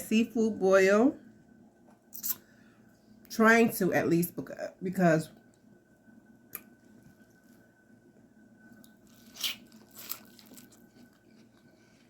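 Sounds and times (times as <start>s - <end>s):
crunching and biting food: 8.8s - 12.0s.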